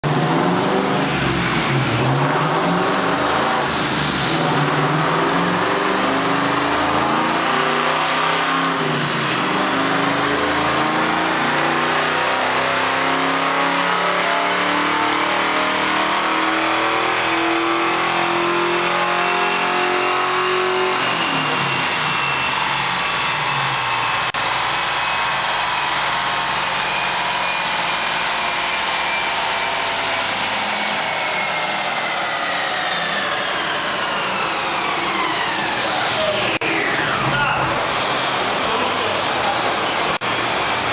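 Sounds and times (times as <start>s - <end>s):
car engine revving on a dynamometer: 0.0s - 40.9s
high whine of rollers: 21.0s - 40.9s.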